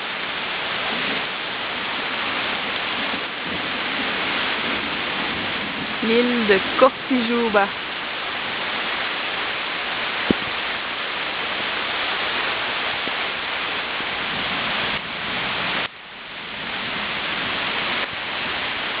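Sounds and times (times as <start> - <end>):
heavy rain pouring: 0.0 - 19.0
dull thump: 10.3 - 10.5.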